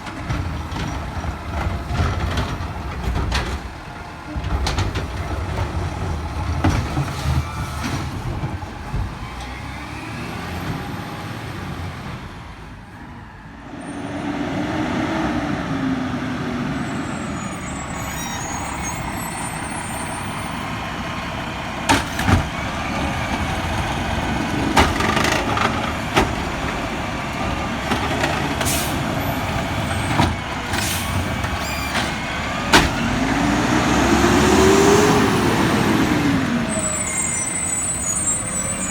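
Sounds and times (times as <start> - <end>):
garbage truck engine revving: 13.8 - 38.9
sharp knocks and bangs: 21.9 - 22.6, 27.9 - 33.5.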